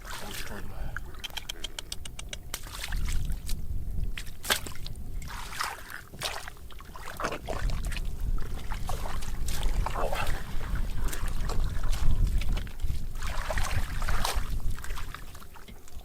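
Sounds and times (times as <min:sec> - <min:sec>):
water splashing and sloshing: 0:00.0 - 0:16.0
wind rumble on microphone: 0:00.0 - 0:16.0.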